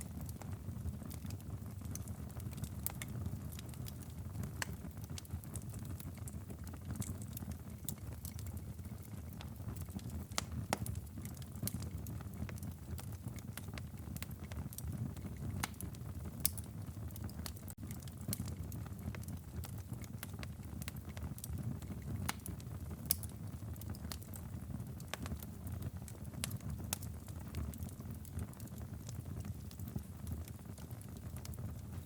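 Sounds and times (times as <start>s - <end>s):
low rumble of flame: 0.0s - 32.0s
wood fire crackling: 0.0s - 32.0s.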